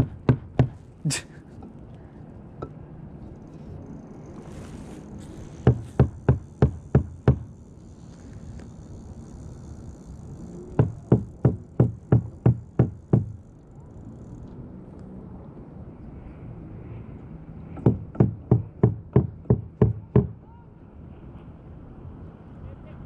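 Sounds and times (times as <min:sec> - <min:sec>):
hollow knocks on kayak hull: 0:00.0 - 0:00.8, 0:05.6 - 0:07.5, 0:10.8 - 0:13.4.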